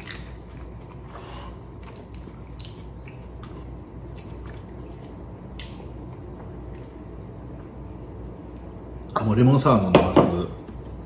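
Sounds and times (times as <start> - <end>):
person chewing food: 0.0 - 7.8
low steady hum: 0.0 - 11.0.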